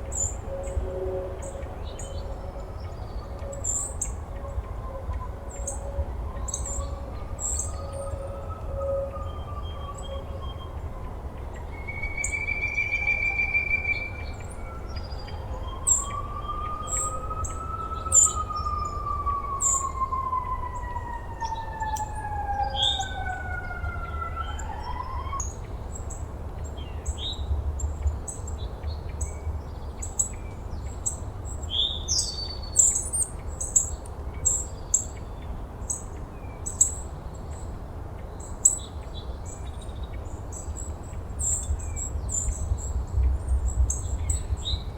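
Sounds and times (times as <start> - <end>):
long wailing tone: 0.0 - 25.7.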